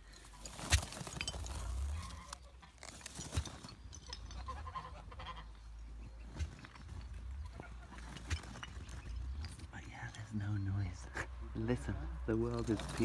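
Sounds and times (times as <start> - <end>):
geese and turkey calling: 0.0 - 13.0
low rumble: 4.3 - 13.0.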